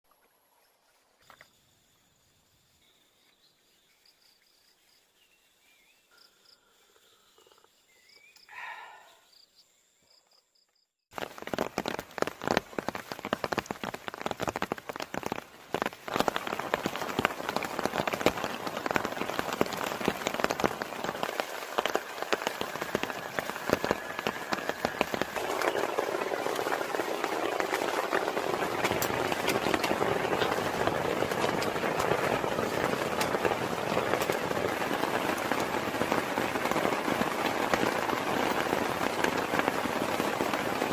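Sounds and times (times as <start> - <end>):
forest ambience: 0.1 - 40.9
heavy rain: 11.2 - 40.9.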